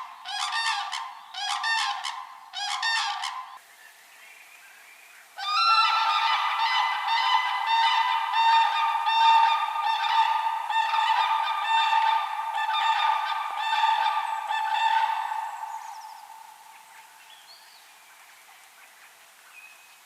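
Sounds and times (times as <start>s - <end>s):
geese honking: 0.0s - 3.6s, 5.4s - 16.5s.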